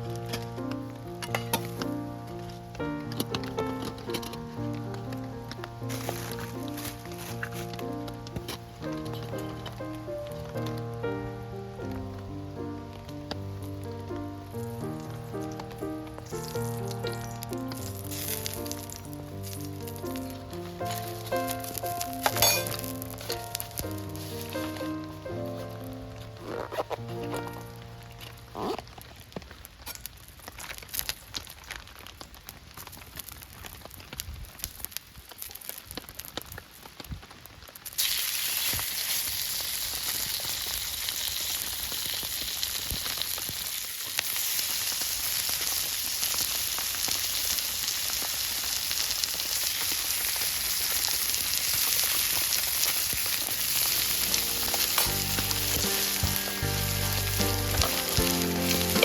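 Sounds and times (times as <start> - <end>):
food sizzling in hot oil: 0.0 - 11.2, 14.5 - 28.8, 37.6 - 59.0.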